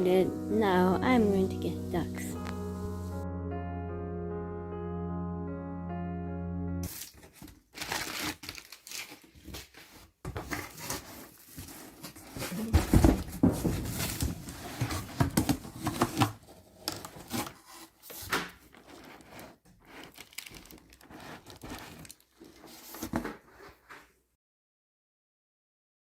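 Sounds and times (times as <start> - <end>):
rustling handling noises: 6.8 - 24.2.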